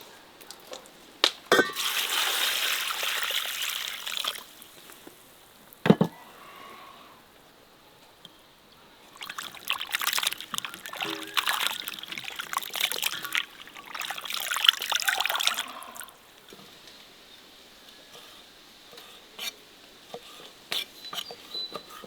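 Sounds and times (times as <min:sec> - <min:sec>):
water trickling and splashing: 0:00.4 - 0:05.8, 0:08.8 - 0:17.1.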